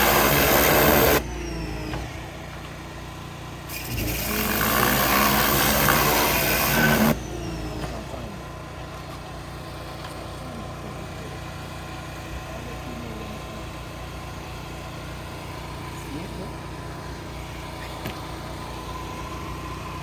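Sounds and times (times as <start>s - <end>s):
loud rushing noise: 0.0s - 1.2s
car engine idling: 6.4s - 20.0s.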